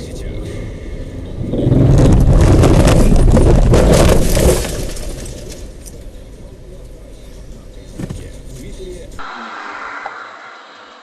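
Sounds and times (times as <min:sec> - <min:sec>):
road rumble: 0:00.0 - 0:11.0
car crash crunching and scraping: 0:01.5 - 0:06.2.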